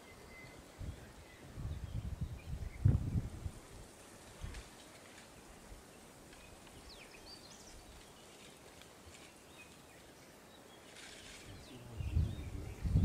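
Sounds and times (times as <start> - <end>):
faint bird chirps and whistles: 0.0 - 3.2
low hiss: 0.0 - 13.0
rustle: 0.0 - 13.0.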